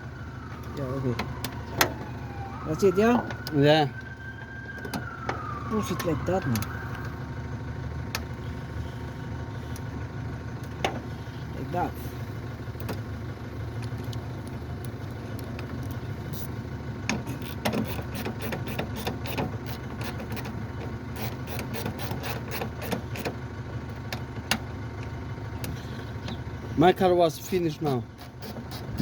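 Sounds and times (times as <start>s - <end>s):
engine idling: 0.0s - 29.0s
car parts clicking and tapping: 0.6s - 2.0s, 3.2s - 5.4s, 9.7s - 11.1s, 12.8s - 13.1s, 13.7s - 26.5s, 27.4s - 29.0s.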